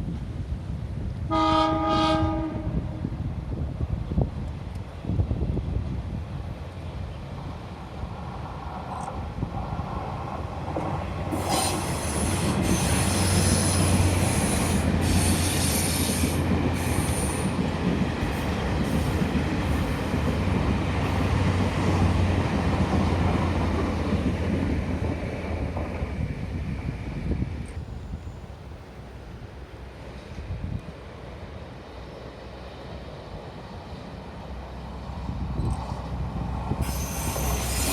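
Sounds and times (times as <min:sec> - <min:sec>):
diesel train engine and wheels rumble: 0:00.0 - 0:37.9
high wheel squeal: 0:11.4 - 0:17.5, 0:36.8 - 0:37.9.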